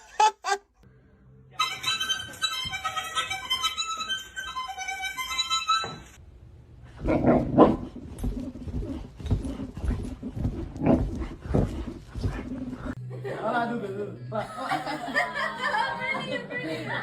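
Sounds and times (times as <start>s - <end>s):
background music: 13.0s - 17.0s.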